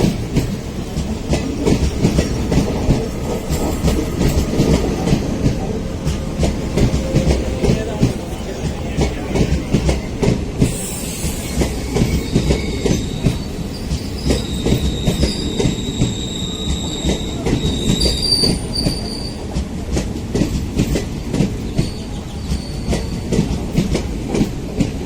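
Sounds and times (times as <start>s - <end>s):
train wheels clattering over rail joints: 0.0s - 25.0s
high-pitched wheel flange squeal: 10.7s - 19.4s.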